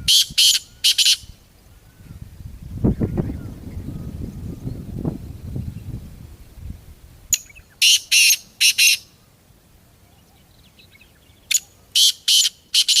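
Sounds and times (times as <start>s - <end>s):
francolin rasping call: 0.0s - 2.2s, 7.3s - 9.3s, 10.0s - 13.0s.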